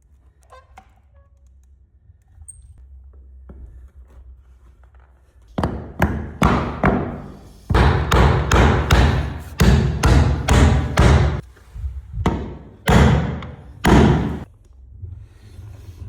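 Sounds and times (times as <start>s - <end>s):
hammer striking wooden parquet: 5.6s - 11.4s, 12.3s - 14.5s.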